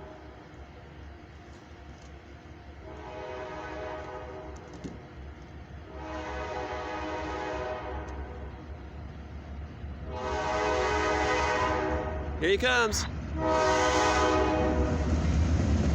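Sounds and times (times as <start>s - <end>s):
locomotive air horn blasts: 2.8s - 4.7s, 5.9s - 8.4s, 10.1s - 12.4s, 13.4s - 15.1s.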